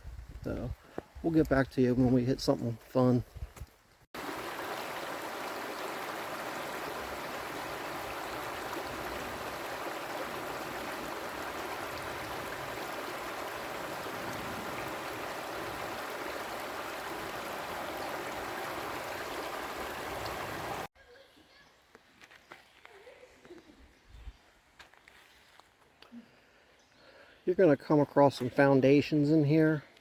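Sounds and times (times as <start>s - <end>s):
creek water flowing over rocks: 4.2s - 20.9s.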